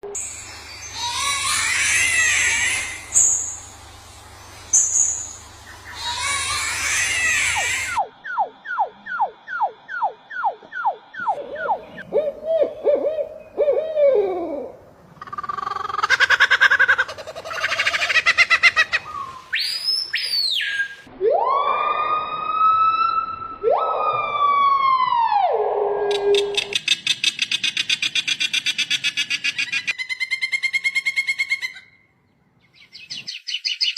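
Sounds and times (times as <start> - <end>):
bird pulsed trill: 0.1 - 6.2, 7.6 - 12.1
bird wailing call: 0.8 - 3.7, 4.7 - 21.0
bird siren-like wails: 5.7 - 14.8, 21.0 - 26.7.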